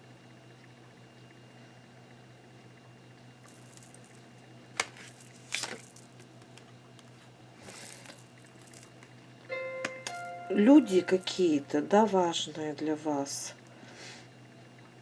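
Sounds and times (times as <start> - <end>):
steady low hum: 0.0 - 15.0
cards rustling: 4.8 - 8.8.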